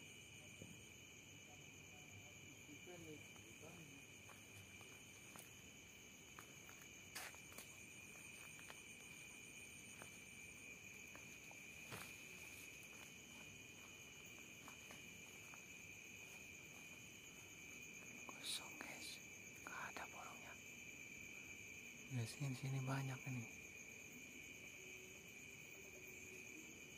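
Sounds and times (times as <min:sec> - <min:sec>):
crickets chirring: 0:00.0 - 0:26.9
footsteps rustling in undergrowth: 0:04.0 - 0:18.2.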